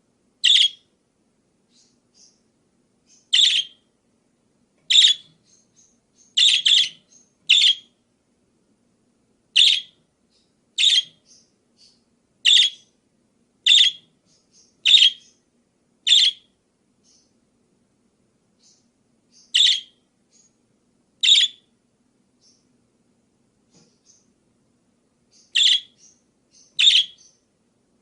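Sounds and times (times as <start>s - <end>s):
parakeet chirping: 0.4s - 0.9s, 1.7s - 2.4s, 3.0s - 3.9s, 4.9s - 8.0s, 9.5s - 13.0s, 13.6s - 17.4s, 18.6s - 20.6s, 21.2s - 21.7s, 22.4s - 22.7s, 25.3s - 27.5s.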